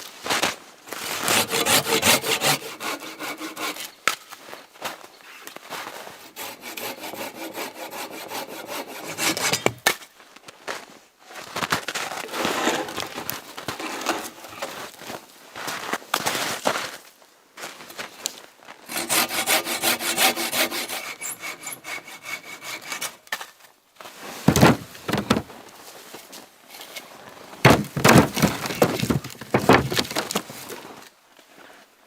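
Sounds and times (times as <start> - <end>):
hand saw cutting wood: 0.9 - 4.0, 6.2 - 9.8, 12.2 - 13.1, 13.7 - 14.7, 18.9 - 23.3, 24.5 - 25.5, 27.7 - 30.4.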